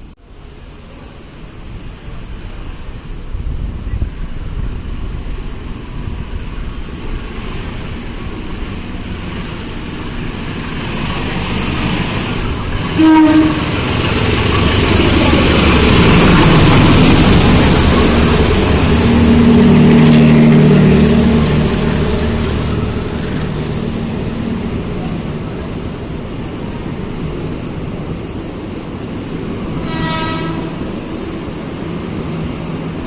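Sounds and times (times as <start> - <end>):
train rumbling on rails: 0.0 - 33.0
train horn toot: 12.9 - 13.8, 29.8 - 30.9
low drone: 13.6 - 26.8.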